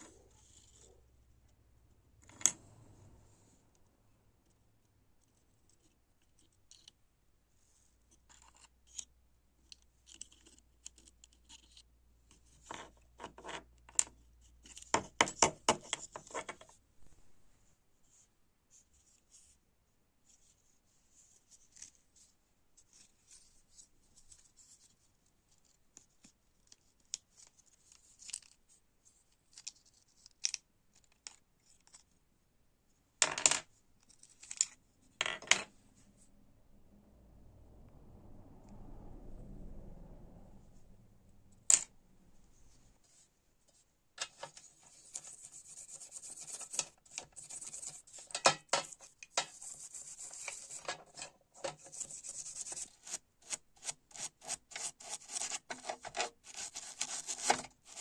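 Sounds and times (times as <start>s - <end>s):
scraping and scratching: 0.0s - 1.2s, 10.0s - 16.8s, 41.6s - 58.0s.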